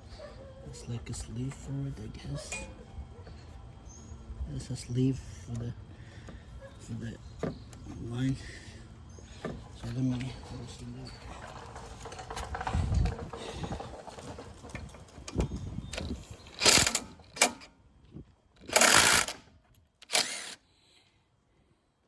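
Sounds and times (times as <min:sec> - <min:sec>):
hand tools clicking on metal: 0:11.4 - 0:17.7, 0:18.6 - 0:19.4, 0:20.0 - 0:20.6
short bursts of noise: 0:20.0 - 0:20.6.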